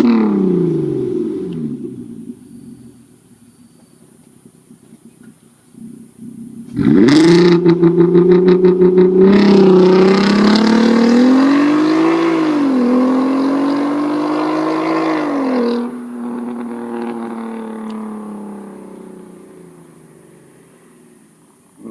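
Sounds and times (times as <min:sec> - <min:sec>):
car engine accelerating: 0:00.0 - 0:03.2, 0:04.6 - 0:21.9.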